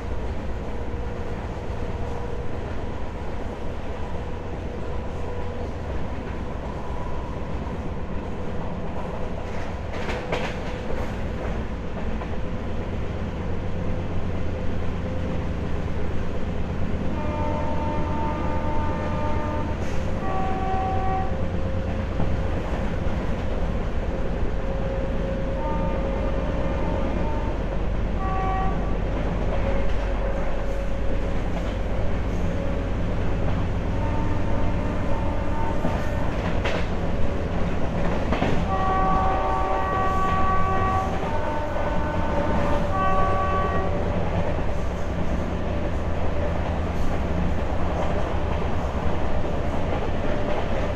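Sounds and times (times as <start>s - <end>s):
train wheels rumbling on track: 0.0s - 50.9s
train horn blasts: 17.1s - 21.9s, 24.6s - 31.0s, 33.6s - 36.8s, 38.5s - 44.4s.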